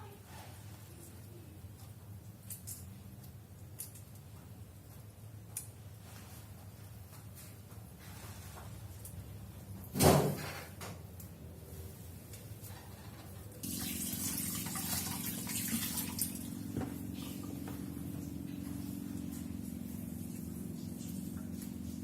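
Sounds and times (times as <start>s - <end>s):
tap water running into sink: 13.6s - 22.0s.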